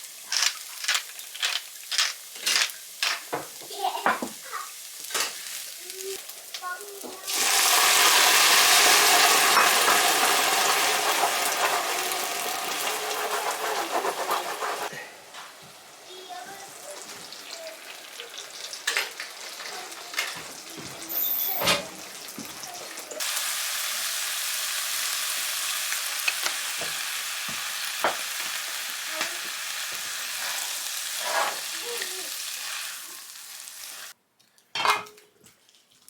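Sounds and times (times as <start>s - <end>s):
food sizzling in a hot pan: 0.0s - 34.2s
utensils clicking and knocking: 0.3s - 3.5s.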